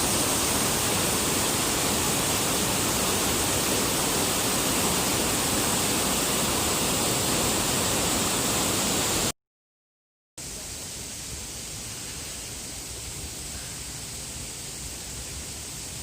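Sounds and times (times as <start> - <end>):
waterfall rushing: 0.0 - 9.3.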